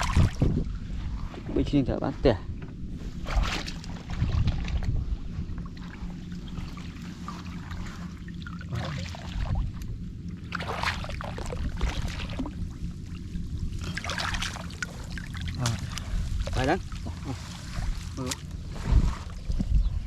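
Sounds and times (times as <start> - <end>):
water splashing and trickling: 0.0 - 0.7, 5.6 - 19.7
steady low rumble: 0.0 - 20.0.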